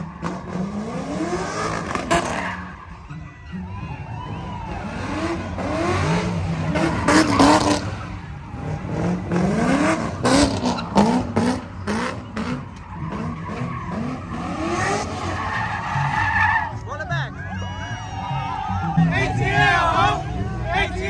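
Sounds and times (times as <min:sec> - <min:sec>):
truck engine revving hard: 0:00.0 - 0:03.0, 0:04.1 - 0:16.8.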